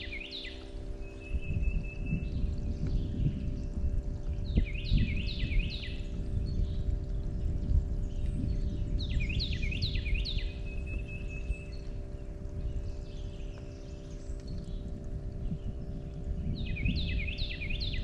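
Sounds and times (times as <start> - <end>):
songbird whistled notes: 0.0 - 3.6, 4.5 - 6.9, 8.1 - 11.9, 16.5 - 18.0
faint hum: 0.0 - 18.0
low rumble: 0.7 - 18.0.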